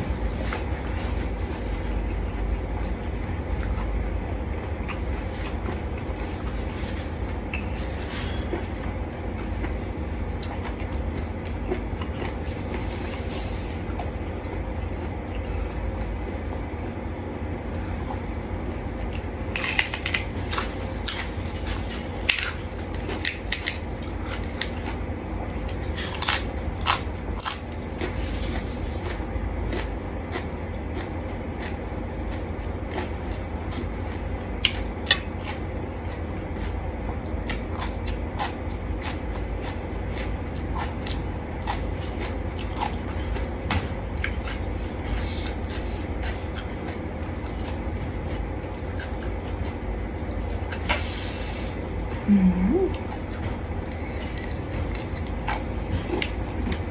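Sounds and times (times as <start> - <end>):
steady low hum: 0.0 - 56.9
crunchy bites and wet chewing: 9.2 - 17.0, 17.6 - 25.0, 25.6 - 51.9.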